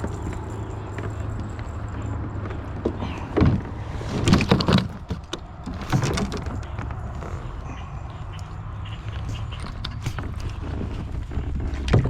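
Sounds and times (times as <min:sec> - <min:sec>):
gear knocking on kayak hull: 0:02.4 - 0:07.6.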